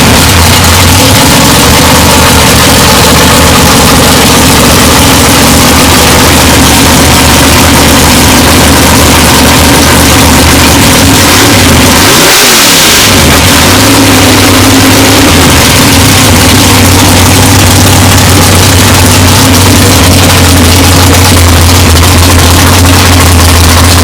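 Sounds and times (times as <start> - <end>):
race car engine idling loudly: 0.0 - 24.0
throttle blip: 0.2 - 24.0.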